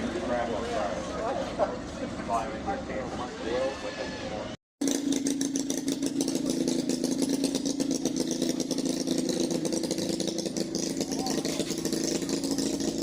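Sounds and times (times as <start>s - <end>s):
tractor engine idling: 4.8s - 13.0s.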